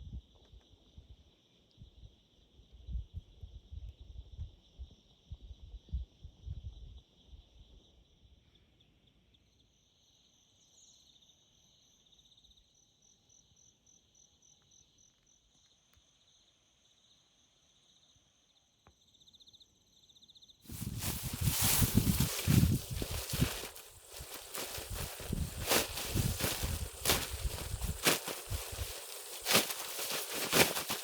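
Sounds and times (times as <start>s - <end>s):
insects chirring: 13.3s - 31.0s
loud rustling: 20.7s - 31.0s.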